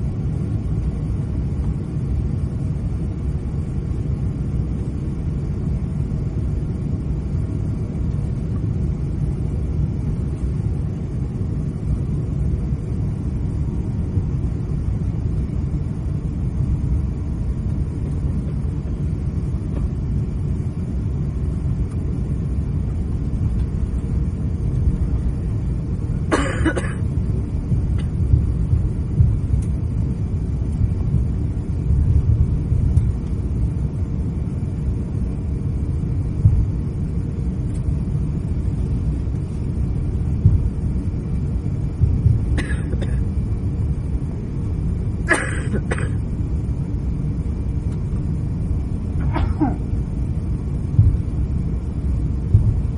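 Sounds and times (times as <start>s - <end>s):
aircraft cabin rumble: 0.0s - 52.9s
person coughing: 26.3s - 27.1s, 42.6s - 43.2s, 45.3s - 46.2s, 49.2s - 49.9s.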